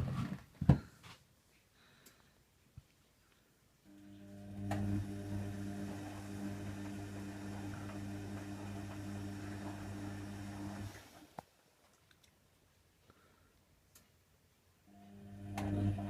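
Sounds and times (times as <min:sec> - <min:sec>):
drain pump humming: 0:03.9 - 0:11.3, 0:14.9 - 0:16.0.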